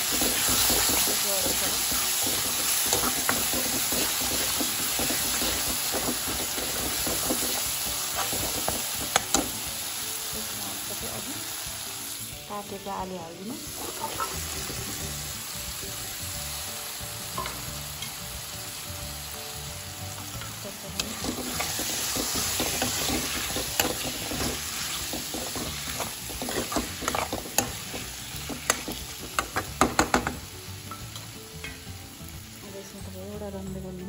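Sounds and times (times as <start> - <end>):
potatoes sizzling in hot oil: 0.0 - 34.0
wooden spoon scraping pan: 21.2 - 29.0.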